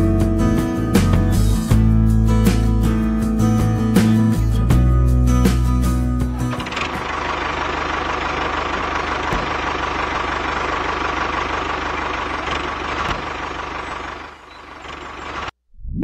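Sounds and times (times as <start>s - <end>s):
small engine running: 6.3s - 15.5s.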